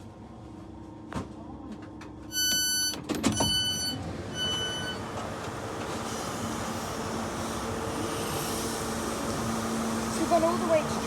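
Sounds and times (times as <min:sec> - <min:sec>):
train running rumble and hum: 0:01.4 - 0:11.0
electronic door warning beep: 0:02.3 - 0:05.0.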